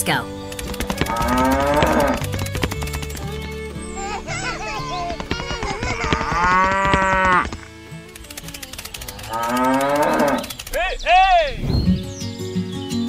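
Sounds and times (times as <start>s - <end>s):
cow mooing: 1.0s - 2.2s, 6.2s - 7.5s, 9.2s - 10.5s.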